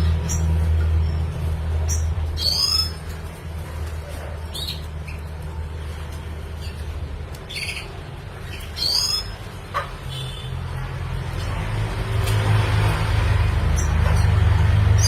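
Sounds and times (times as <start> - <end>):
bird twittering calls: 1.8 - 3.1, 7.4 - 9.5.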